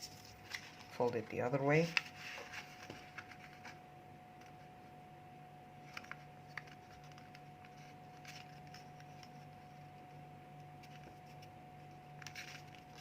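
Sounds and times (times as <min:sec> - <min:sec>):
paper being folded and creased: 0:00.0 - 0:01.2, 0:01.8 - 0:03.8, 0:05.8 - 0:09.8, 0:10.8 - 0:13.0
faint steady hum: 0:00.0 - 0:13.0.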